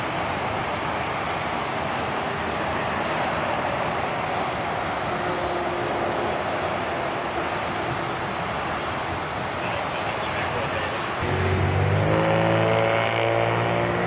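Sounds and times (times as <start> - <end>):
highway traffic rushing: 0.0 - 14.0.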